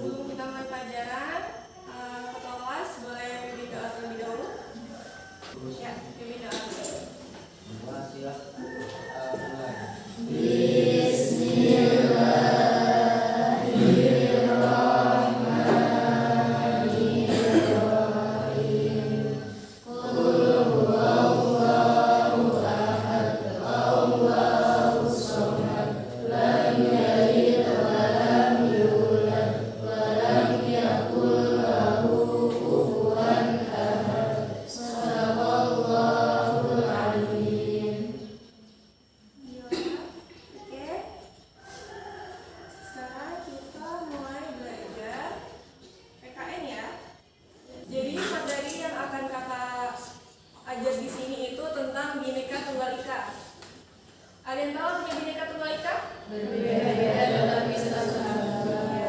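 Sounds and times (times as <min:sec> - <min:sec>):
group of people singing: 0:09.2 - 0:38.6, 0:47.8 - 0:48.5, 0:56.2 - 0:59.0.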